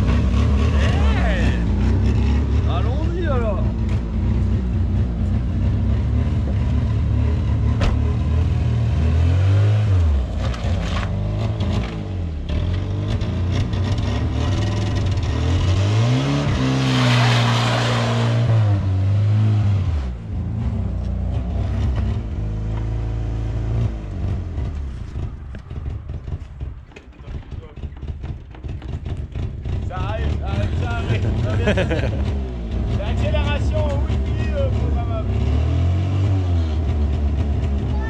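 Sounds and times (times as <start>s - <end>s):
car engine revving: 0.0s - 38.0s.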